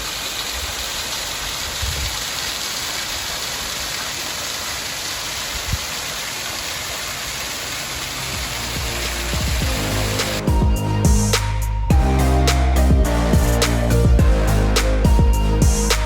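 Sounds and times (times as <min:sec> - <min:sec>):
small waterfall rushing: 0:00.0 - 0:10.4
background music: 0:08.5 - 0:16.0.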